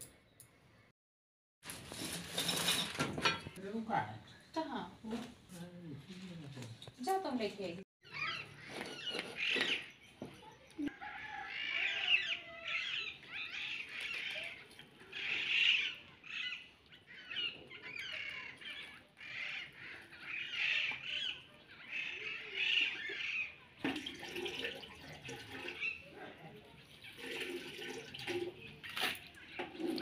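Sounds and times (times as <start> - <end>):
birds chirping: 8.0 - 23.8, 25.1 - 30.0.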